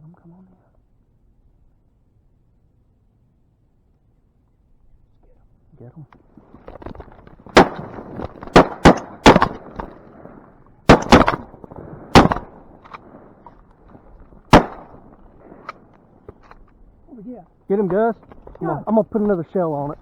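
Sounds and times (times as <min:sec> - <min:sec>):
shotgun shots with echo: 0:07.5 - 0:13.4, 0:14.5 - 0:15.9.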